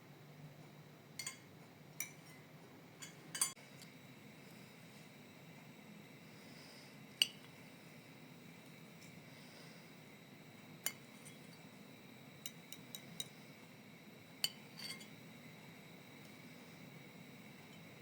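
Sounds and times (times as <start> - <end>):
faint steady background hum: 0.0 - 18.0
dishes and utensils clinking: 1.2 - 3.6, 14.4 - 15.2.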